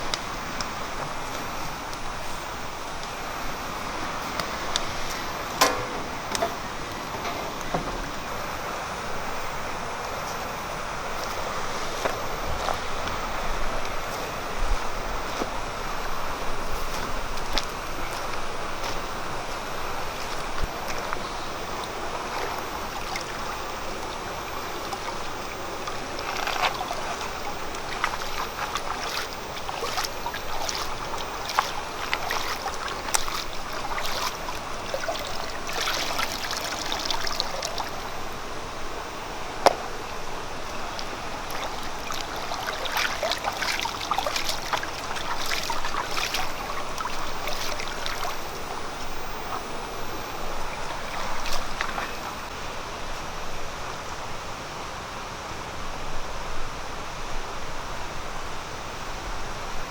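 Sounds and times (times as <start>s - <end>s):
flowing water: 0.0s - 59.9s.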